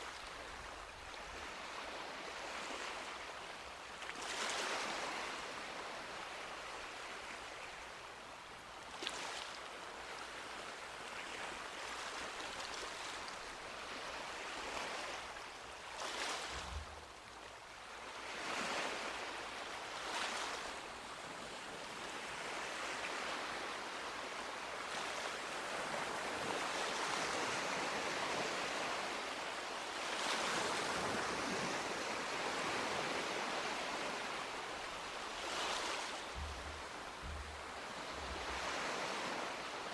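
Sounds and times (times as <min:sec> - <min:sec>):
sea waves breaking: 0:30.1 - 0:39.9.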